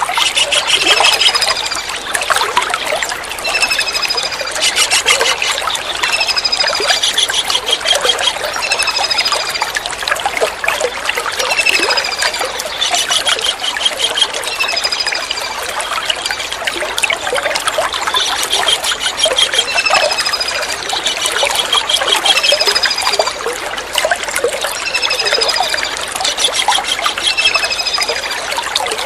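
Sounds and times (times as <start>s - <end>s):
kingfisher calls: 0.0s - 1.8s, 3.5s - 9.3s, 11.5s - 15.0s
running water trickling: 0.0s - 29.0s.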